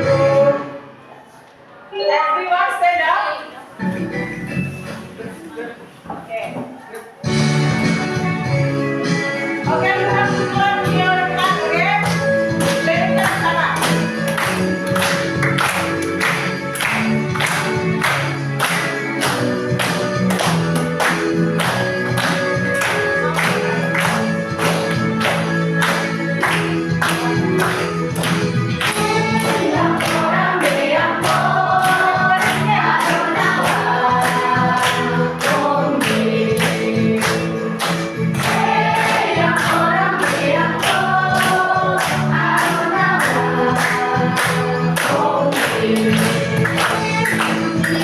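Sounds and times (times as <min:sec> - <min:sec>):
song over a speaker: 0:00.0 - 0:05.6, 0:07.2 - 0:48.0
group singing along: 0:09.8 - 0:48.0
hand claps: 0:10.8 - 0:48.0.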